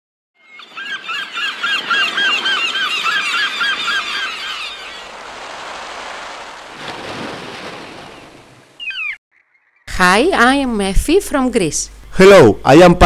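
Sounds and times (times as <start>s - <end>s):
bird calling rapidly: 0.4s - 5.2s, 7.9s - 9.9s
even rushing noise: 4.8s - 8.8s.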